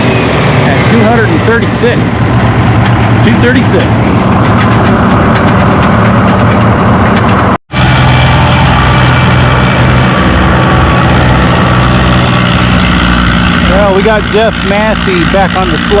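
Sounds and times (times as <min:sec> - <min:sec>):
loud tractor engines running: 0:00.0 - 0:16.0.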